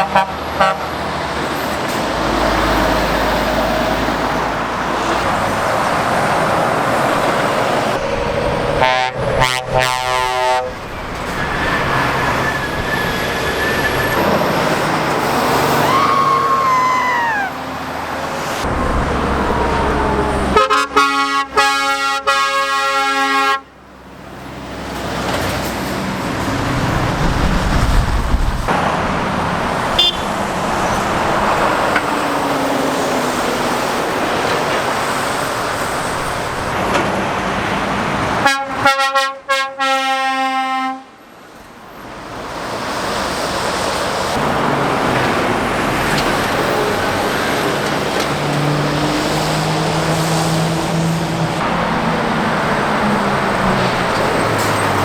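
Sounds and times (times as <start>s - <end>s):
heavy traffic passing: 0.0s - 55.0s
deep engine rumble: 18.6s - 20.6s
lorry air horn: 20.5s - 23.7s.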